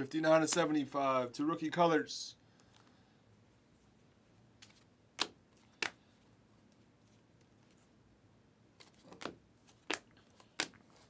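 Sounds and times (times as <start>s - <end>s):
cards flicking: 4.6s - 6.0s, 8.8s - 10.9s
trading cards snapping: 4.6s - 6.0s, 8.8s - 10.8s.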